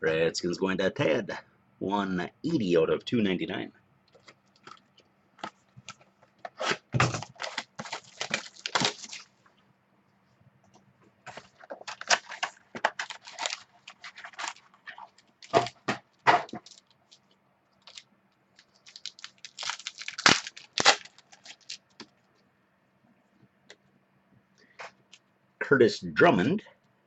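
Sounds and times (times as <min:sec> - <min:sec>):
cards rustling: 0:04.2 - 0:09.3, 0:11.3 - 0:18.0, 0:18.6 - 0:22.2
wrapper tearing and crinkling: 0:06.6 - 0:09.3, 0:11.4 - 0:15.9, 0:16.5 - 0:18.0, 0:18.6 - 0:22.1.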